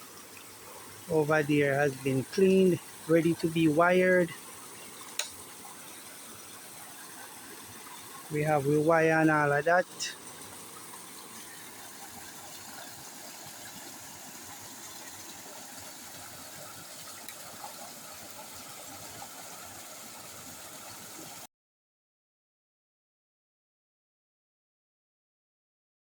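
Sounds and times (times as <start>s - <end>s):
river flowing: 0.0s - 21.4s.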